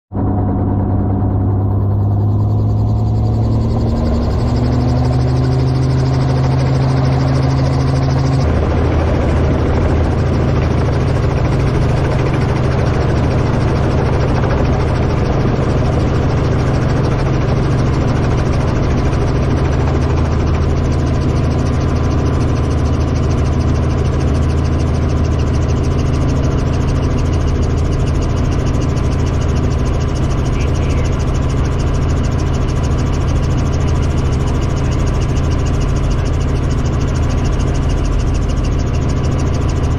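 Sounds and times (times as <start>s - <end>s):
helicopter engine: 0.1s - 39.9s
high steady tone: 25.0s - 39.9s.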